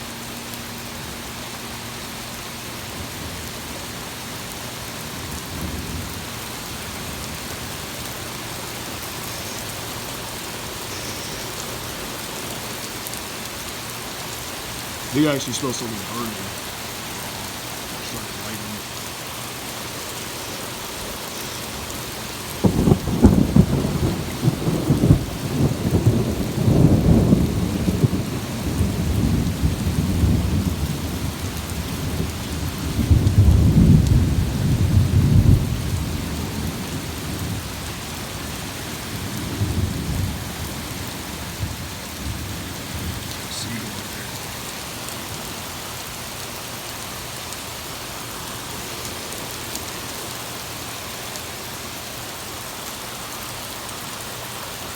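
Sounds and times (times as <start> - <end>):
heavy rain hiss: 0.0 - 54.9
thunder rumbling: 20.7 - 37.7.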